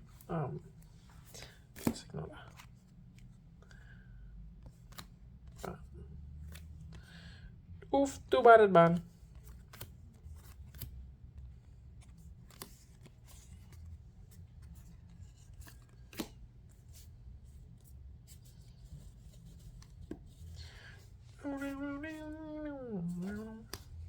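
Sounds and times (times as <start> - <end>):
trading cards clicking and rustling: 1.2 - 3.8, 9.2 - 17.1, 23.1 - 24.0.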